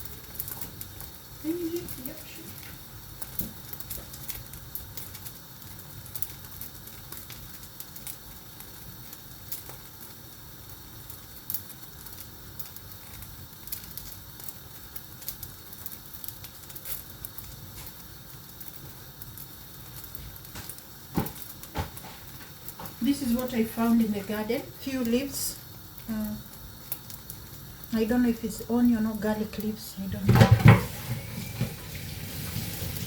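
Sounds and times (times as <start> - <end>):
small crackles and pops: 0.0 - 31.9
flatbread sizzling in a pan: 0.0 - 33.0.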